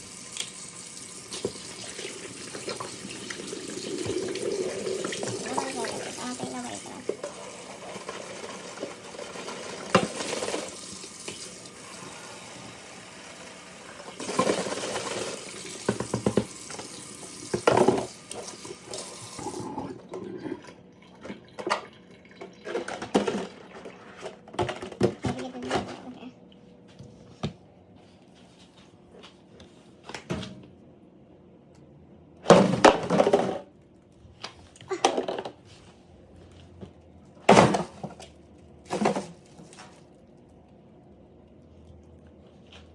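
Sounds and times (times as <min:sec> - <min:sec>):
tap water running into sink: 0:00.0 - 0:19.8
containers knocking and clunking: 0:14.2 - 0:16.8, 0:21.2 - 0:26.2, 0:34.9 - 0:35.6.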